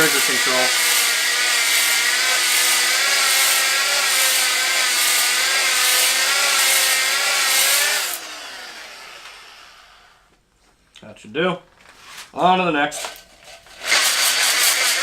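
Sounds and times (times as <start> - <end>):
hand drill motor running: 0.0 - 10.2, 13.8 - 15.0.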